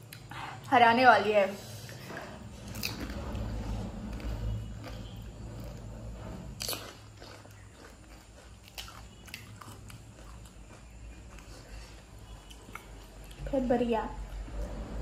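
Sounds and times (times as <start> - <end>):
crisp food crunching: 6.6 - 13.4.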